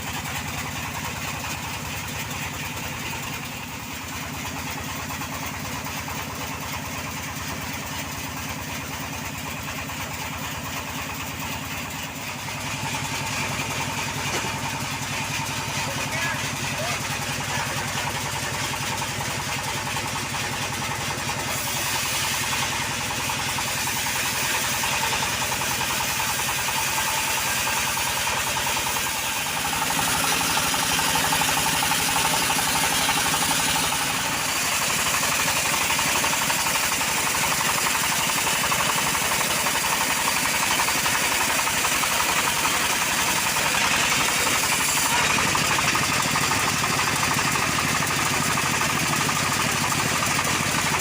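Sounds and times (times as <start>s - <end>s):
chainsaw cutting log: 11.4s - 17.6s, 21.0s - 51.0s.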